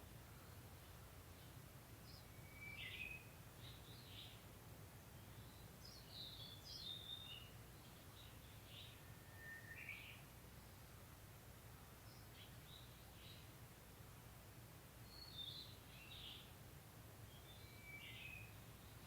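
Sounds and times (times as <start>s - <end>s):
bird chirps: 2.1s - 4.4s, 5.4s - 10.2s, 15.0s - 16.5s, 17.3s - 19.0s
bird whistling song: 2.2s - 4.3s, 8.8s - 10.2s, 17.3s - 18.6s.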